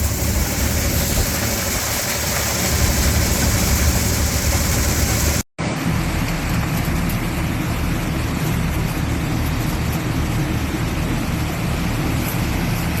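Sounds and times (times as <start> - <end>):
combine harvester engine drone: 0.0 - 13.0.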